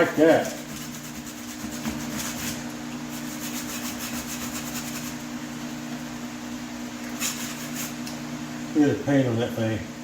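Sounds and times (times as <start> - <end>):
scrubbing on metal: 0.0 - 5.3, 7.1 - 8.1
steady low hum: 0.0 - 10.0.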